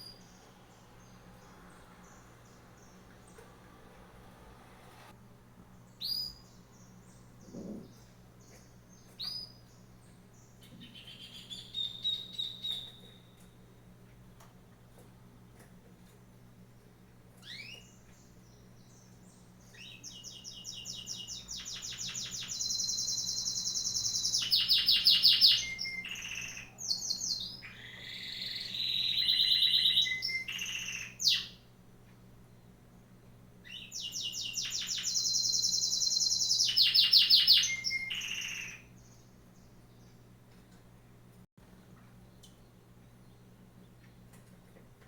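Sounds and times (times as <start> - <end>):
songbird trilling: 19.7 - 31.5, 33.7 - 38.8.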